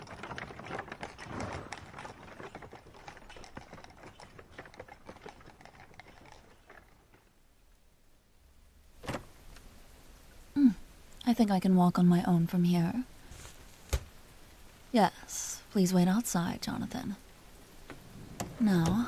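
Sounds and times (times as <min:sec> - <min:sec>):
horse hooves on hard road: 0:00.0 - 0:07.3.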